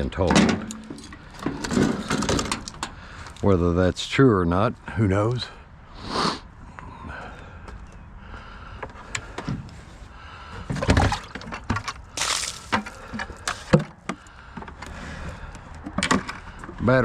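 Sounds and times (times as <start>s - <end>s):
hard objects clattering: 0.2s - 3.4s, 10.7s - 14.8s.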